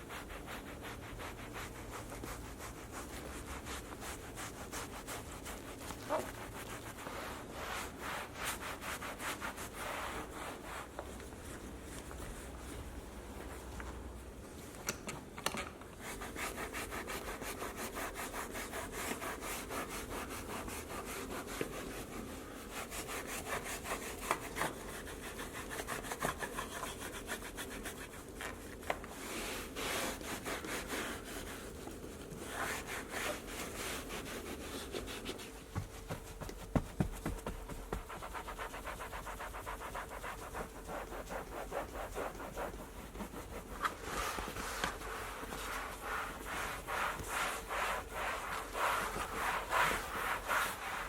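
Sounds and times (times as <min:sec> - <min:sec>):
stiff brush scrubbing: 0:00.0 - 0:10.9, 0:22.8 - 0:51.0.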